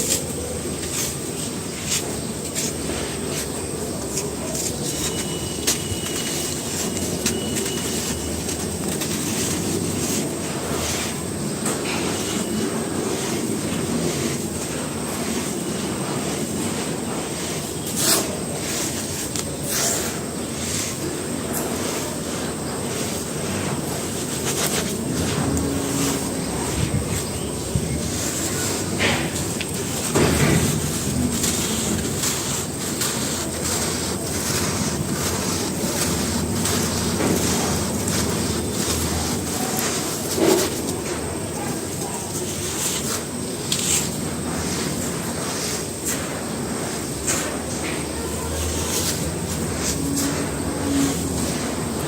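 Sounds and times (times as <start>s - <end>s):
cement crunching by hand: 16.6s - 46.4s.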